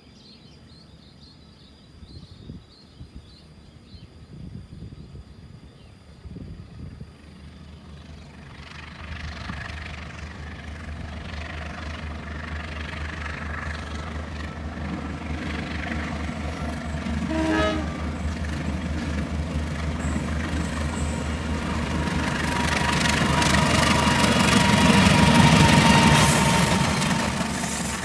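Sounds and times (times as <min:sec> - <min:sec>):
diesel locomotive engine drone: 0:03.4 - 0:28.0
train horn toot: 0:16.8 - 0:18.5.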